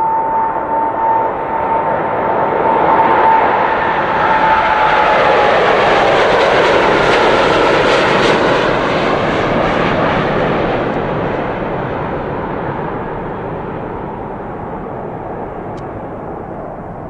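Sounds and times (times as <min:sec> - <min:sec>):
jet airliner engines roaring: 0:00.0 - 0:17.0.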